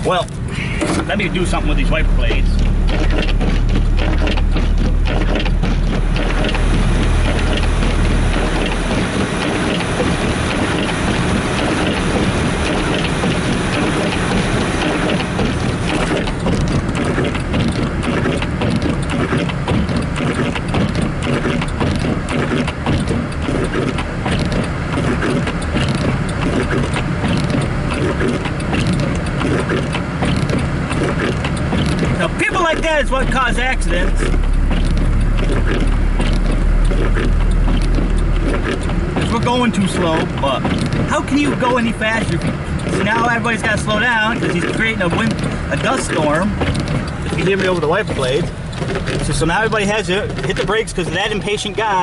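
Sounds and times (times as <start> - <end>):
low hum: 0.0 - 52.0
road and engine noise: 0.0 - 52.0
wipers scraping icy windshield: 0.0 - 52.0.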